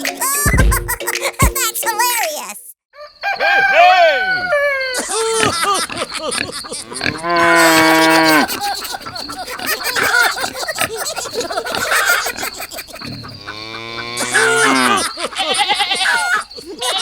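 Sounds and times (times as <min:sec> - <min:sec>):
cow mooing: 0:03.8 - 0:09.2, 0:13.1 - 0:16.4.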